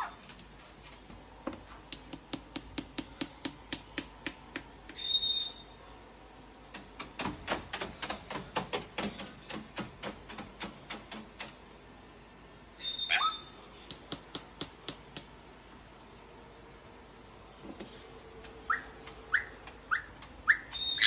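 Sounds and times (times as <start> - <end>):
sharp taps and clicks: 1.1 - 5.0, 6.7 - 11.6, 13.9 - 15.3
parrot shrill call: 12.8 - 13.6, 18.7 - 21.0.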